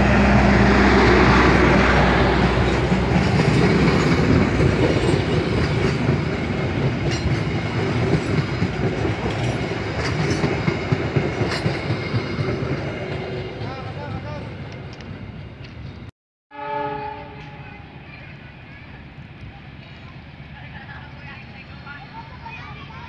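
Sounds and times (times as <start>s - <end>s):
train wheels clattering: 2.4s - 16.1s.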